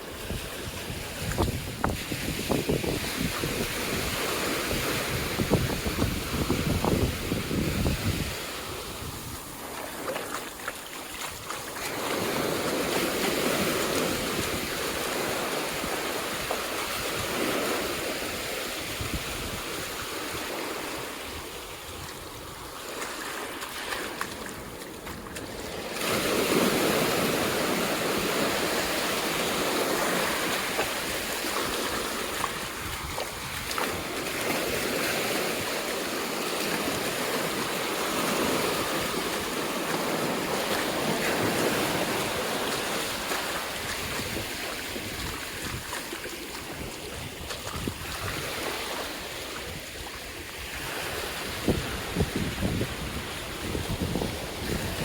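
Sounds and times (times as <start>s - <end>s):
waves breaking on beach: 0.0s - 55.0s.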